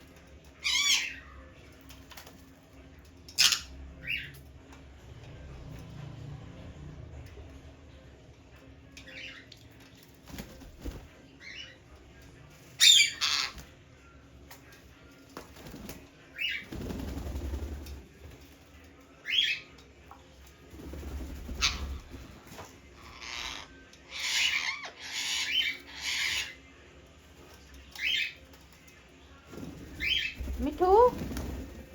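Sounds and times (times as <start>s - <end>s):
parrot squawking: 0.6s - 1.3s, 3.4s - 4.2s, 12.8s - 13.7s, 21.5s - 22.2s, 23.0s - 26.6s
wing flapping: 15.4s - 18.4s, 20.7s - 22.6s, 29.5s - 31.9s.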